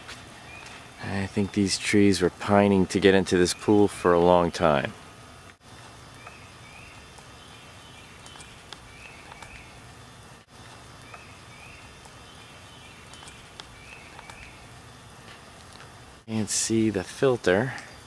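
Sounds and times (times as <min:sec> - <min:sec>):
steady hiss: 0:00.0 - 0:18.0
bird chirps: 0:06.1 - 0:09.8, 0:11.0 - 0:14.6.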